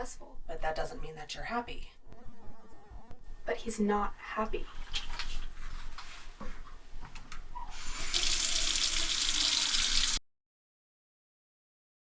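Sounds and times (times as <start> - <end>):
tap water rushing into sink: 7.7 - 10.2.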